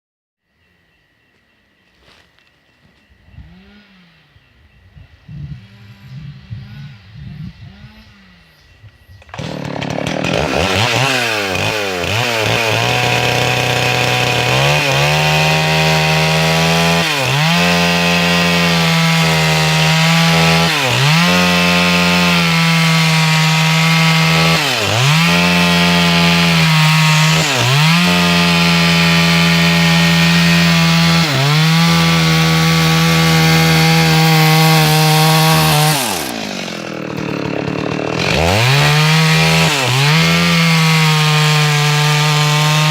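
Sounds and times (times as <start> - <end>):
chainsaw cutting log: 9.2 - 42.9.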